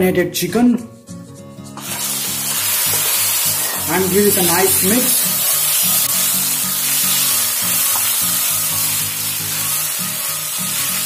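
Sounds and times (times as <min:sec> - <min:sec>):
chicken sizzling in hot oil: 0:01.8 - 0:11.0.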